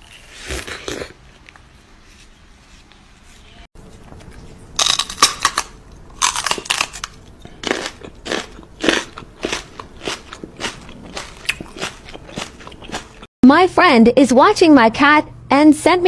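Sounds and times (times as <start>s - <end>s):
crunchy food chewing: 3.8s - 13.3s.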